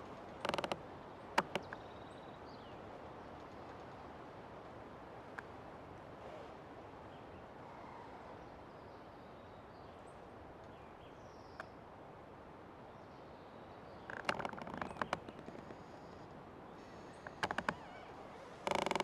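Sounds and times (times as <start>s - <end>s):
tree creaking: 0.0s - 2.0s, 14.0s - 19.0s.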